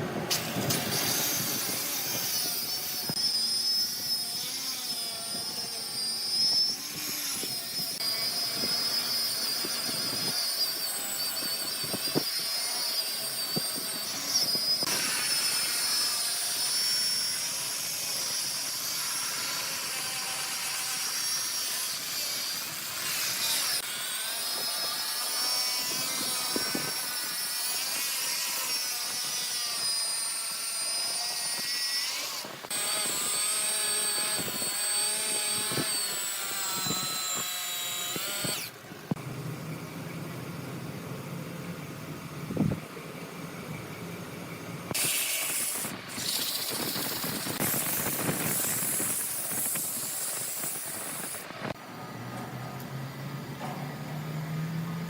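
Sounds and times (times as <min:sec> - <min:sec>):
wood lathe cutting whine: 0:01.0 - 0:38.9.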